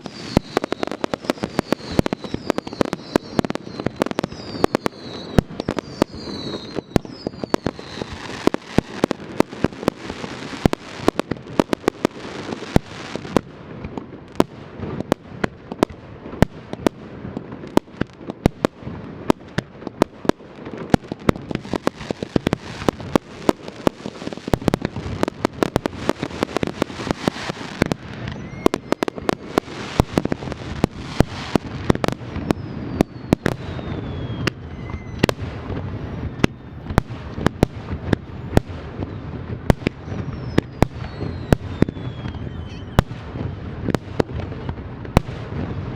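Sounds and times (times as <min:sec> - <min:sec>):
firework falling whistles: 0:00.0 - 0:09.2, 0:21.5 - 0:45.9
fireworks cracking bursts: 0:00.0 - 0:45.9.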